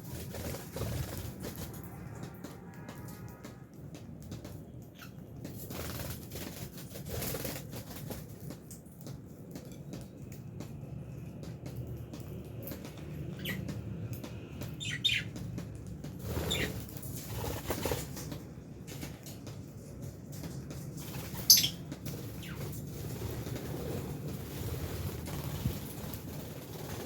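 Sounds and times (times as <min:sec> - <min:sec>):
wings fluttering: 0:00.0 - 0:27.0
lovebirds chirping: 0:14.8 - 0:15.3, 0:21.4 - 0:22.6.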